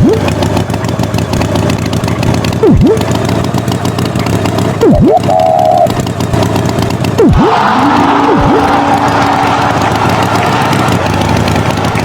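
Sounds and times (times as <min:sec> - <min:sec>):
swooping sound effect: 0:00.0 - 0:00.3, 0:02.6 - 0:03.1, 0:04.8 - 0:05.9, 0:07.2 - 0:12.0
cartoon tractor engine: 0:00.0 - 0:12.0
short steady tone: 0:04.8 - 0:05.9.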